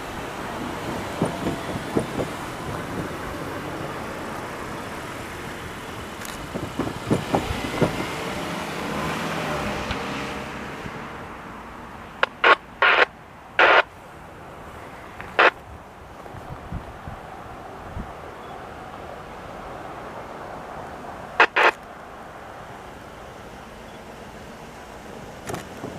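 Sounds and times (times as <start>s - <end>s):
passing train rumble: 0.0s - 25.9s
scattered clicks: 6.2s - 6.4s, 12.2s - 13.9s, 21.4s - 21.9s.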